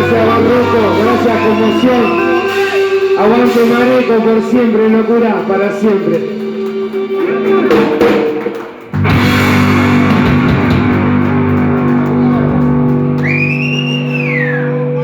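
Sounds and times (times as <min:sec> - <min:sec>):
electric guitar chord ringing: 0:09.0 - 0:15.0.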